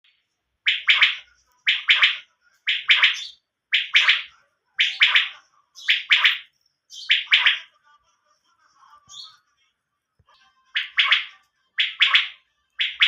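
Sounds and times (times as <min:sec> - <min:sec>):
quail calling: 0:00.7 - 0:07.7, 0:10.8 - 0:13.0.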